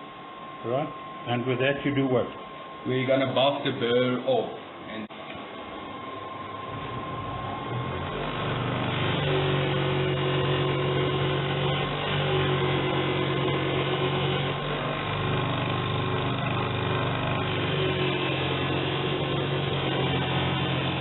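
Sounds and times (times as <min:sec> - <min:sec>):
belt sander motor humming: 0:06.7 - 0:21.0.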